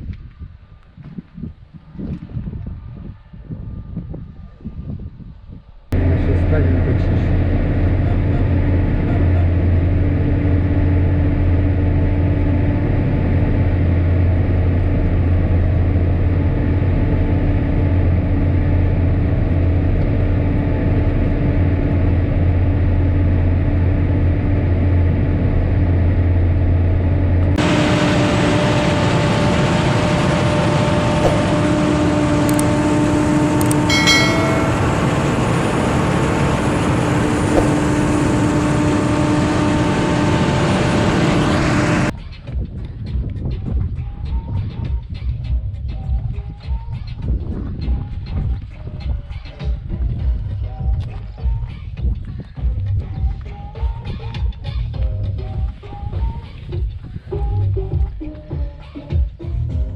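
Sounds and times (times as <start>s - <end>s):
tractor engine running: 6.0s - 42.1s.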